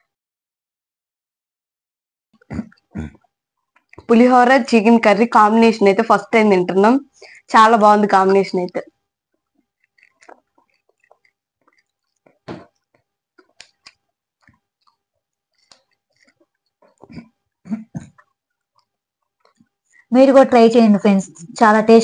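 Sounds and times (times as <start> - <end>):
people chewing and smacking: 2.4 - 4.2, 8.8 - 20.1.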